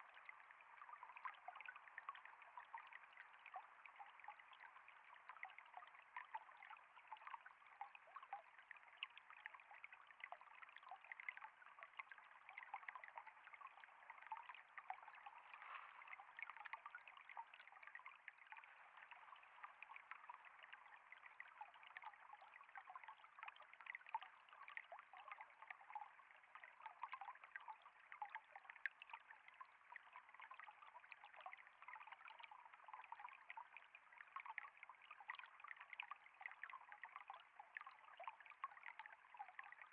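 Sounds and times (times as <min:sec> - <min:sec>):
small splashes and drips: 0:00.0 - 0:39.9
water trickling: 0:00.0 - 0:39.9.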